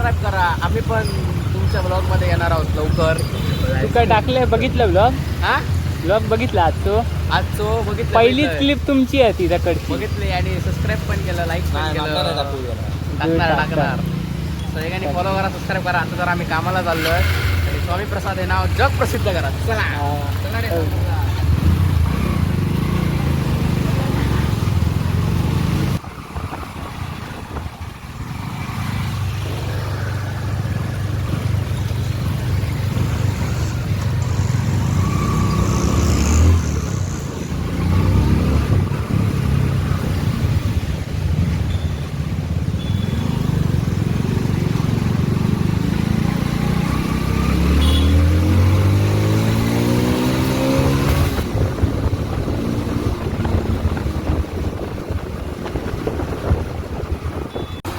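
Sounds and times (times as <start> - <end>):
motorcycle engine accelerating: 13.1 - 26.0, 28.1 - 57.9.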